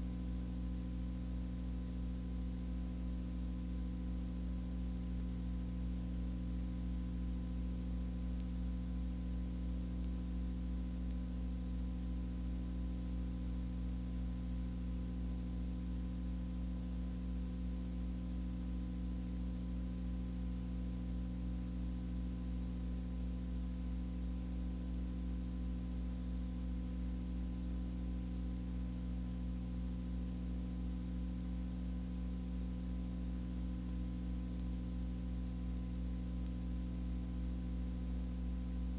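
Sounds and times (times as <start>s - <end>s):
steady low hum: 26.1s - 38.9s.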